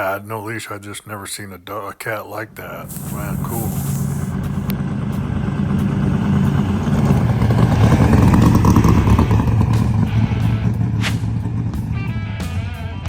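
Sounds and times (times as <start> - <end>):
vehicle engine rumbling past: 2.4 - 12.4.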